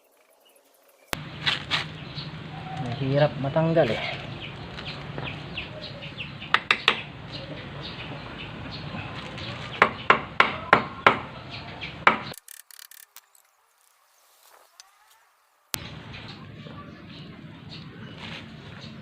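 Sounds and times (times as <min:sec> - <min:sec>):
sharp knocks on rusted metal: 0:06.4 - 0:07.2, 0:09.7 - 0:11.3, 0:12.0 - 0:12.4.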